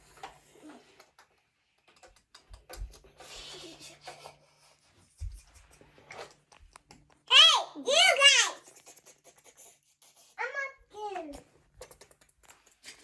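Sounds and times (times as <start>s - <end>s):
plastic toys clicking and knocking: 0.1s - 4.4s, 11.0s - 13.0s.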